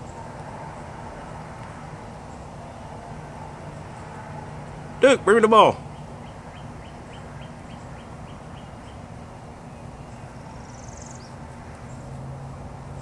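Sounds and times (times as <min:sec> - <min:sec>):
small bird chirping: 0:05.8 - 0:12.1.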